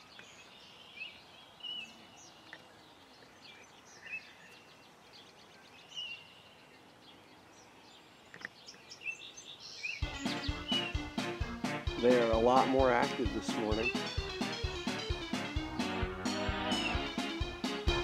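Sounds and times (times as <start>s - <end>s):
faint background noise: 0.0s - 10.0s
birds chirping: 0.0s - 18.0s.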